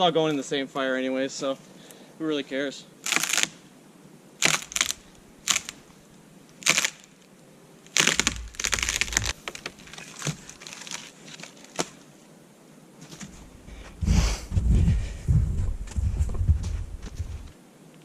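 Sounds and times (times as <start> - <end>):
dry wood snapping: 3.0 - 3.6, 4.4 - 5.8, 6.5 - 7.3, 7.9 - 12.1.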